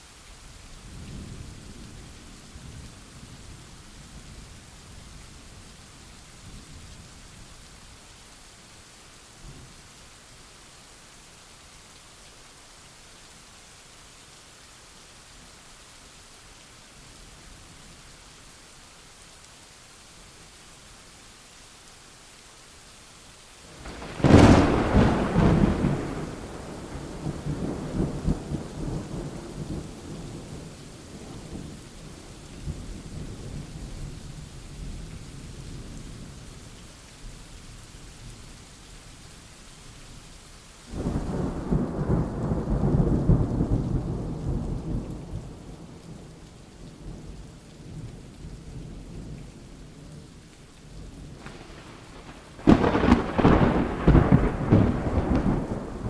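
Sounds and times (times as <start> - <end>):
steady rain: 0.0 - 56.0
rolling thunder: 23.8 - 31.6, 51.3 - 56.0
loud thunder claps: 23.9 - 28.7, 51.4 - 56.0.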